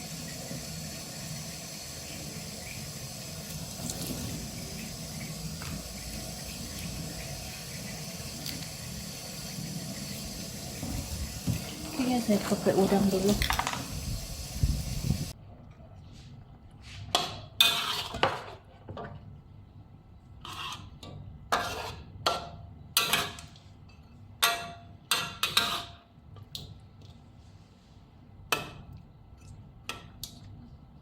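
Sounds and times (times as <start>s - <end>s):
kitchen tap running: 0.0s - 15.3s
dishes and utensils clinking: 13.3s - 14.0s.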